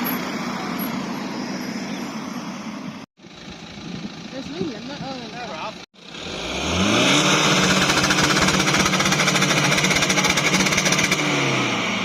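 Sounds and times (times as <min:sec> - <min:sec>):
car engine revving: 0:06.0 - 0:12.0.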